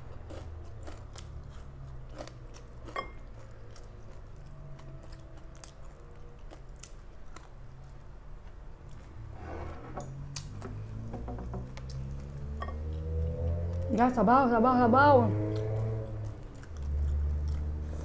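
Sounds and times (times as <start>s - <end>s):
person chewing: 0.0s - 9.3s, 15.6s - 18.0s.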